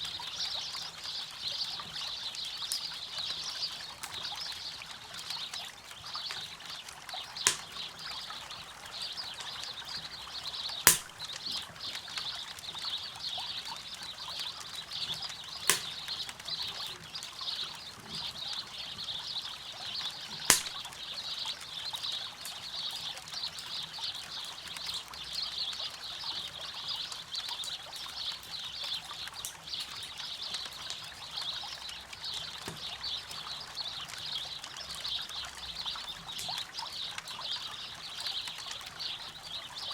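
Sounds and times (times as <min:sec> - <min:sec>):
campfire crackling and popping: 0:03.9 - 0:19.1, 0:19.9 - 0:23.6, 0:27.4 - 0:39.4.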